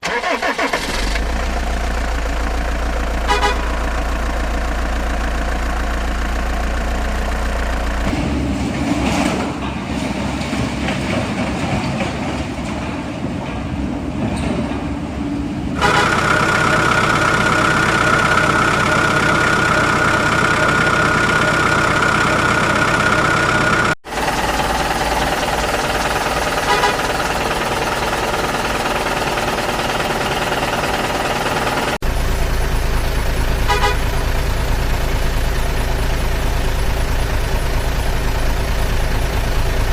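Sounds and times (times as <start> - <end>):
vehicle engines running: 0.0 - 39.9
horn-like tone: 3.3 - 3.9, 15.8 - 19.1, 26.6 - 27.2, 33.7 - 34.3.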